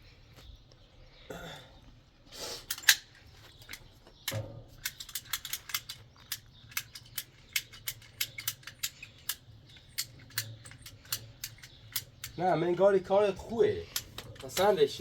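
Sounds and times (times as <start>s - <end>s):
sharp irregular clicks: 3.6s - 13.0s.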